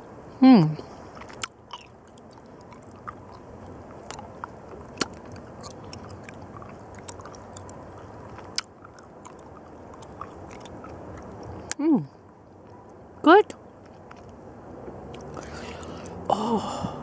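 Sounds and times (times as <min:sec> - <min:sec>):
person chewing candy: 0:01.0 - 0:13.0, 0:13.8 - 0:16.5
wet mouth clicks and smacks: 0:01.1 - 0:11.8, 0:15.1 - 0:16.3.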